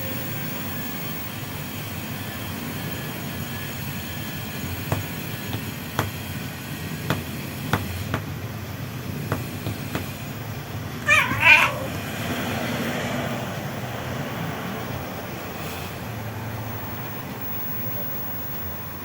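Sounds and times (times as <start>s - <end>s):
cat meowing: 11.0s - 12.0s.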